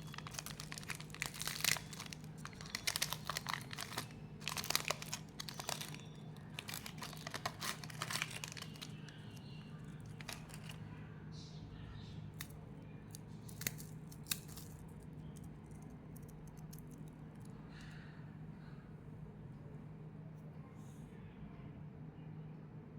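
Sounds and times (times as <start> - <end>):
crackles and clicks: 0.0 - 10.8
packaging crinkling and tearing: 0.0 - 10.8, 13.4 - 14.9
steady low hum: 0.0 - 22.9.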